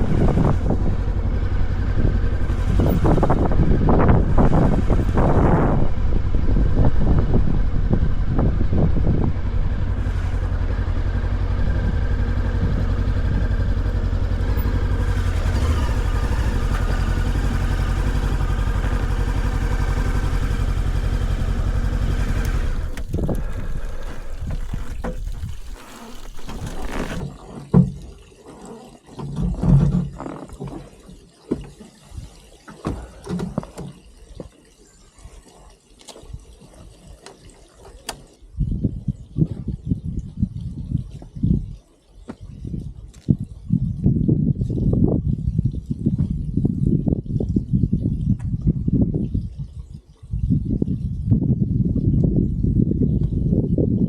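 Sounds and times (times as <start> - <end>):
motorcycle engine running: 0.0 - 27.3.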